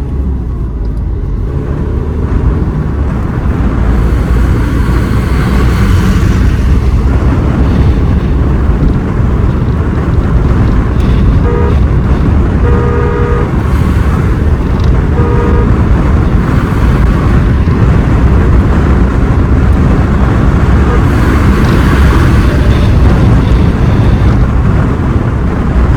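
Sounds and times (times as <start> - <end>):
vehicle driving on road: 0.0 - 25.9
car horn toots: 11.0 - 16.2, 20.6 - 24.4.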